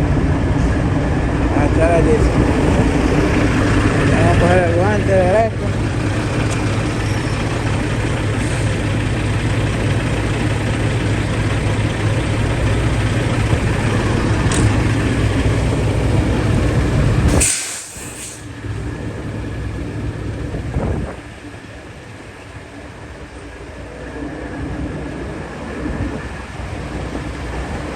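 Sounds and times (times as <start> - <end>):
diesel engine idling: 0.0 - 27.9
air hiss: 17.3 - 18.6.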